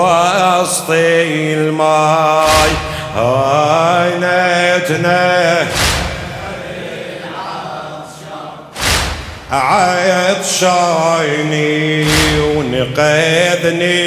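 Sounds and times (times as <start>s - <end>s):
man chanting: 0.0s - 8.2s, 9.5s - 14.0s
loud thump: 2.4s - 3.2s, 5.6s - 6.7s, 8.8s - 10.1s, 12.0s - 13.0s.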